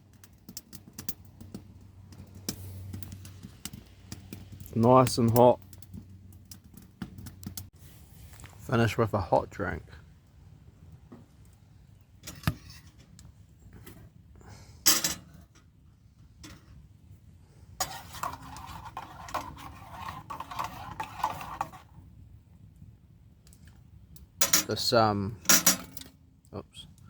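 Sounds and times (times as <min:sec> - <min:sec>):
metal cookware clinking: 0:14.9 - 0:15.4.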